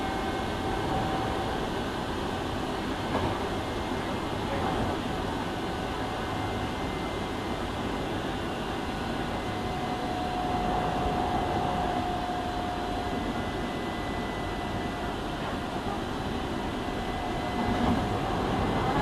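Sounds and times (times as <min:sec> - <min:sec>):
wheels rumbling on rail: 0:00.0 - 0:06.6, 0:08.6 - 0:19.0
faint train whine: 0:00.0 - 0:19.0.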